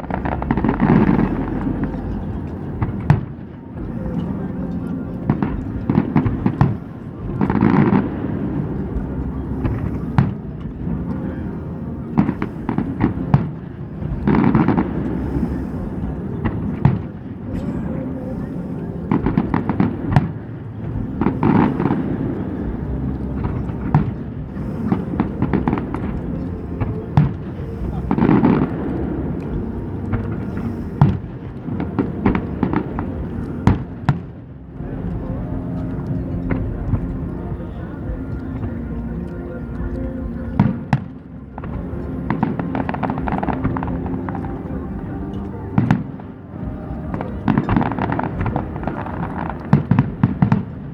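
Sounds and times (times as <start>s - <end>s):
fireworks bursting: 0.0s - 50.9s.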